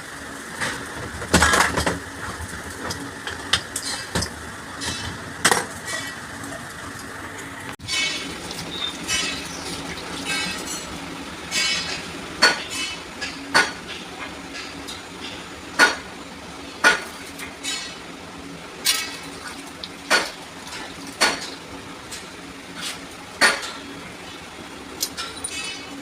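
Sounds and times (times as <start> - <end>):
metal tools clinking: 25.0 - 26.0.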